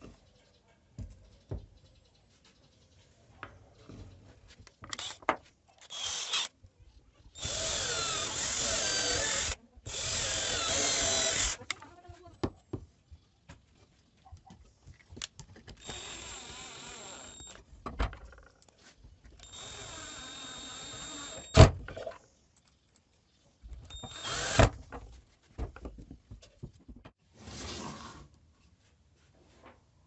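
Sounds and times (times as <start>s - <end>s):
power drill running: 5.9s - 6.5s, 7.4s - 11.6s, 15.8s - 17.6s, 19.4s - 21.6s, 23.9s - 24.7s.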